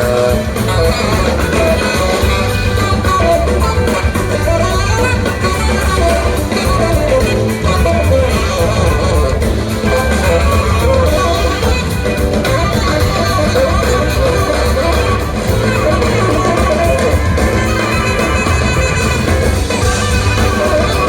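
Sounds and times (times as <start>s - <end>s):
live band music: 0.0s - 21.0s.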